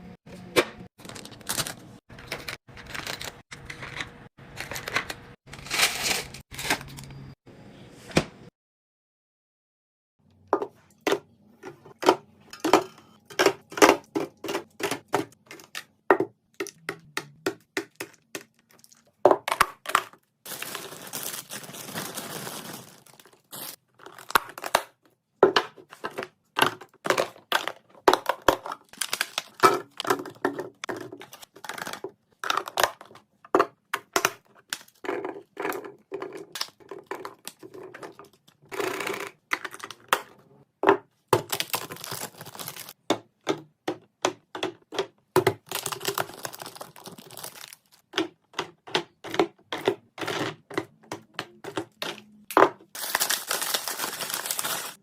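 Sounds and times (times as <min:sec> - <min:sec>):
containers clicking and knocking: 0:10.5 - 0:23.2, 0:24.0 - 0:55.0.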